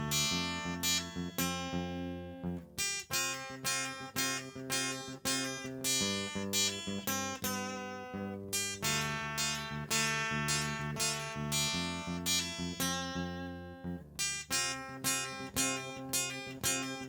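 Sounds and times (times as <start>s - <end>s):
acoustic guitar playing: 0.0s - 13.2s.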